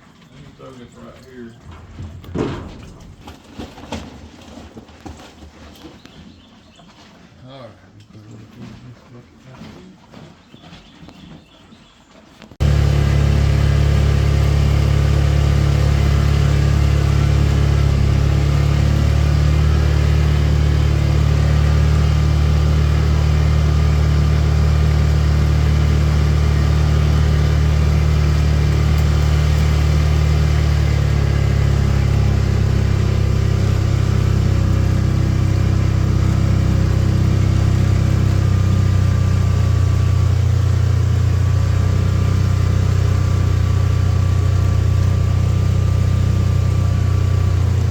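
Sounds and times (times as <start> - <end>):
vehicle engine droning: 12.6 - 47.9.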